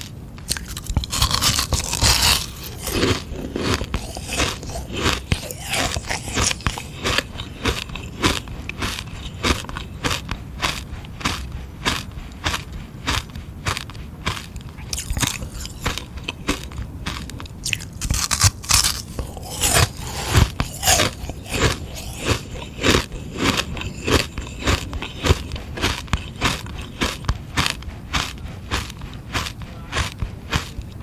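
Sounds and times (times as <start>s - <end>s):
crunching ice lolly: 0.4s - 31.0s.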